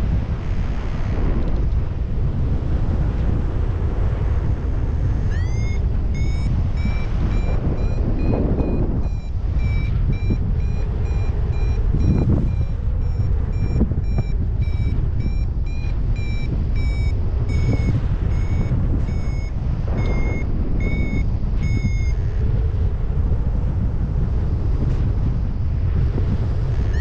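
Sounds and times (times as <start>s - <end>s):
wind rumble on microphone: 0.0s - 27.0s
variometer beeping: 4.4s - 22.9s, 26.1s - 27.0s.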